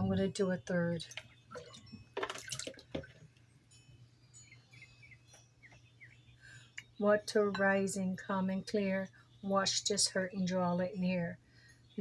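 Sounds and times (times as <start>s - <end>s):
water dripping and trickling: 1.0s - 3.4s
water pouring into a dish: 1.6s - 3.0s
water splash: 1.6s - 3.0s.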